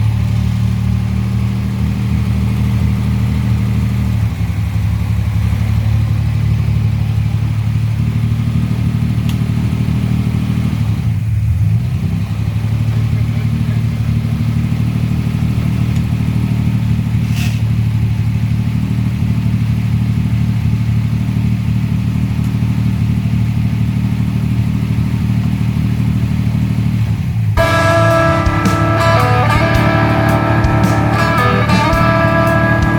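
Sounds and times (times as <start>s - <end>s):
guitar music: 27.6s - 32.9s.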